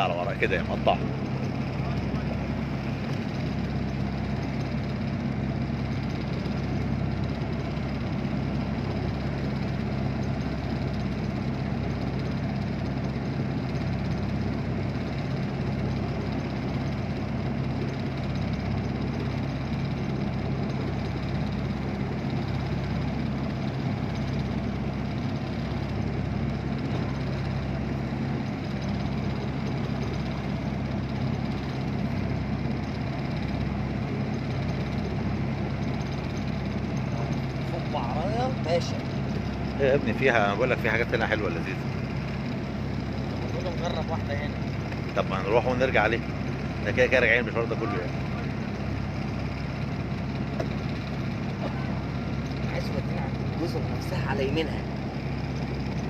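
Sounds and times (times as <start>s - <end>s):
boat engine humming: 0.0s - 56.0s.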